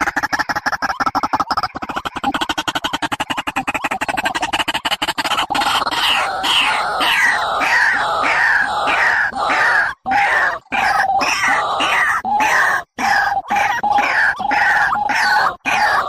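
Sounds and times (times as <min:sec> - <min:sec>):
bird call with falling notes: 0:05.9 - 0:16.0.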